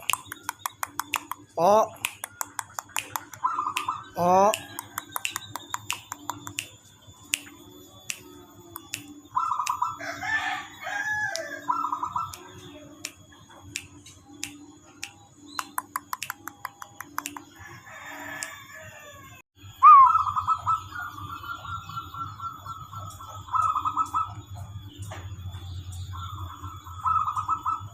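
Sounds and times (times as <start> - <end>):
sharp clicks: 0.0 - 9.8, 12.3 - 17.5
rooster crowing: 9.7 - 12.3, 17.6 - 21.2
dove cooing: 19.8 - 24.8, 26.2 - 27.9.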